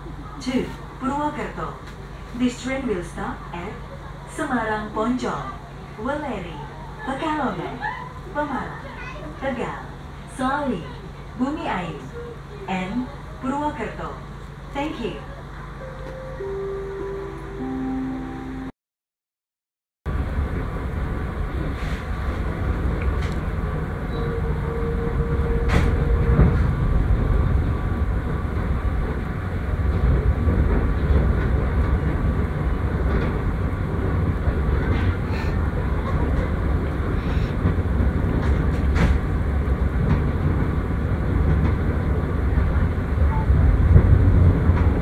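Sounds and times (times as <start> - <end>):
train low rumble: 0.0 - 18.7, 20.1 - 45.0
faint tone: 15.8 - 18.8.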